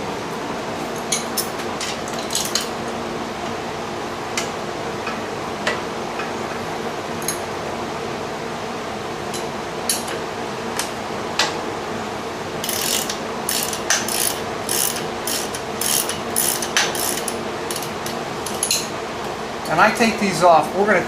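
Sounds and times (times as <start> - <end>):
ratchet wrench clicking: 12.6 - 17.9.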